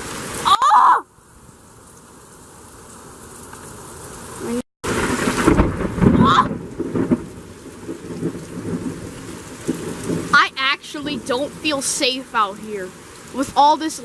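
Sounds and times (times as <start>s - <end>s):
rain falling: 0.0s - 14.0s
thunder rumbling: 4.4s - 14.0s.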